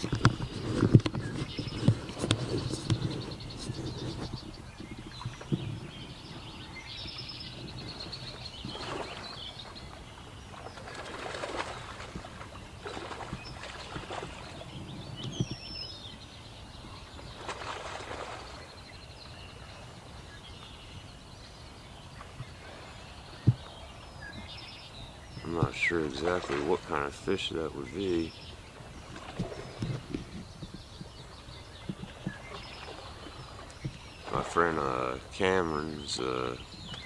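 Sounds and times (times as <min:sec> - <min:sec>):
fish splashing in water: 0:00.0 - 0:14.8, 0:17.3 - 0:18.9, 0:25.4 - 0:37.0
small birds chirping: 0:00.0 - 0:37.0.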